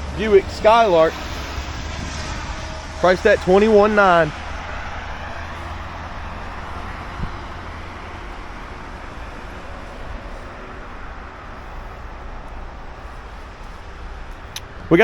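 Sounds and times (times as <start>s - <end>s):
low steady rumble: 0.0s - 15.0s
rain falling: 3.1s - 15.0s.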